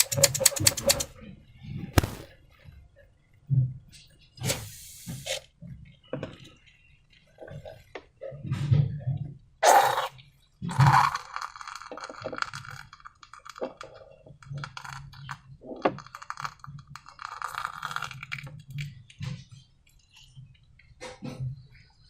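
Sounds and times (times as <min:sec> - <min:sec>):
slime popping: 0:02.0 - 0:02.3.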